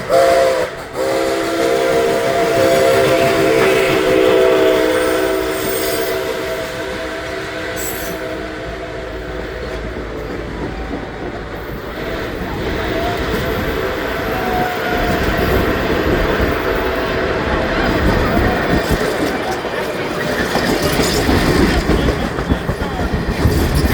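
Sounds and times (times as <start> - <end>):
train rumbling past on rails: 0.0 - 23.9
steam train chime whistle: 0.1 - 9.8.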